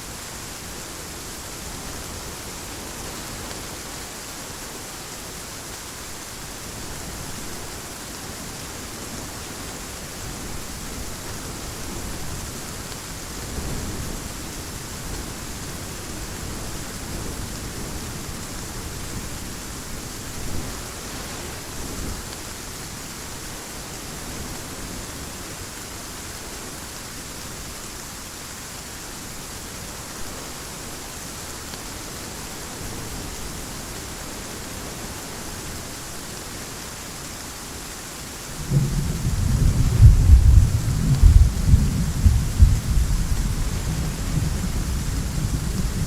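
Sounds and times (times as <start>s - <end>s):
heavy rain falling: 0.0s - 46.0s
low rolling thunder: 38.5s - 46.0s.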